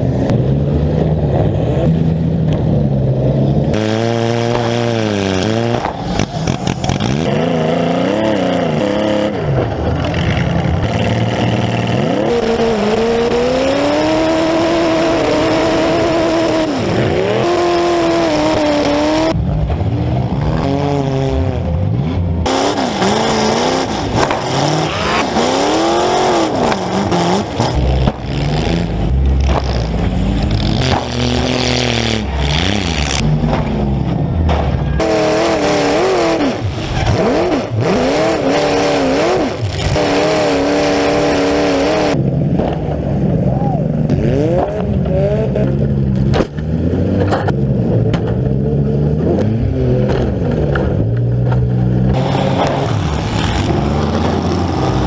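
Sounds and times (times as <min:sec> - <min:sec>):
car engines revving hard: 0:00.0 - 0:55.0.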